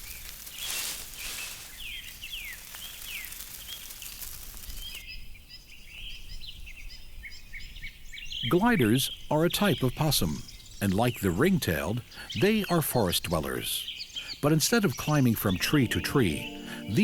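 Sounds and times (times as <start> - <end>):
short downward-sweeping chirps: 15.7 - 17.0.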